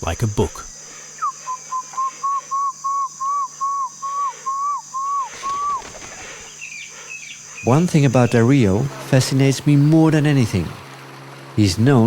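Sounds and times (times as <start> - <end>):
high insect drone: 0.0 - 12.0
man whistling animal call: 1.2 - 6.2.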